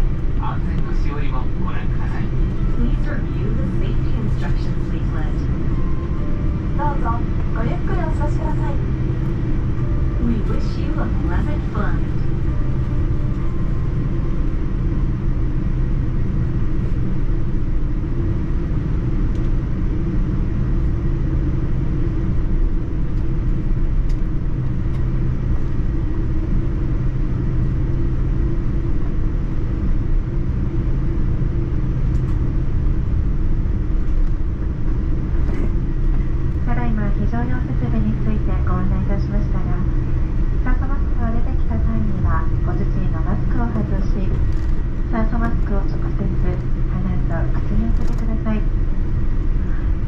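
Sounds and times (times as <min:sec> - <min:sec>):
airliner cabin rumble: 0:00.0 - 0:50.0.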